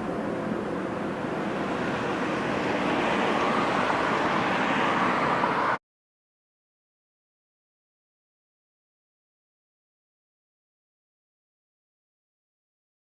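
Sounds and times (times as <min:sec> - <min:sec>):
road vehicle tyres and engine: 0:00.0 - 0:05.8.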